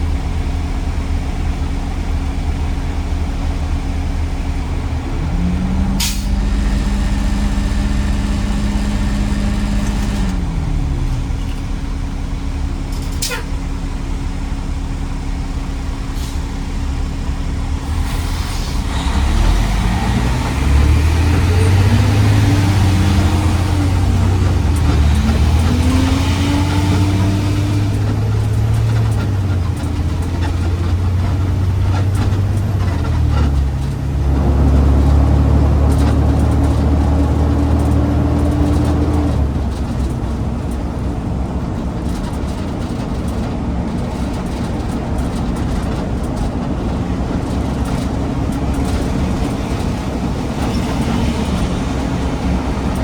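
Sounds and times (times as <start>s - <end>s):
diesel truck engine running: 0.0s - 53.0s
air brake hiss: 17.9s - 18.9s.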